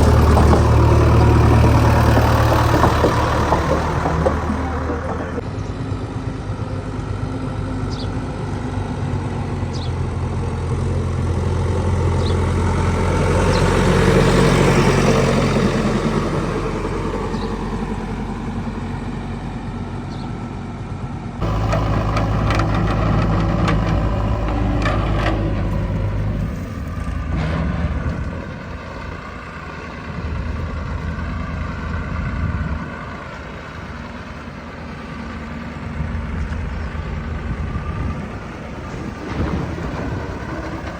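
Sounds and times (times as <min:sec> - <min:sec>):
heavy diesel engine revving: 0:00.0 - 0:40.9
metal clanks: 0:21.4 - 0:28.8.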